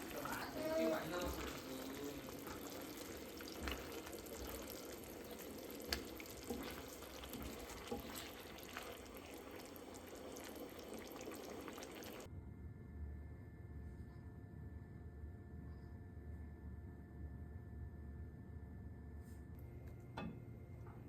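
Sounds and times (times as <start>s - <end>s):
kitchen water sounds: 0.0s - 12.3s.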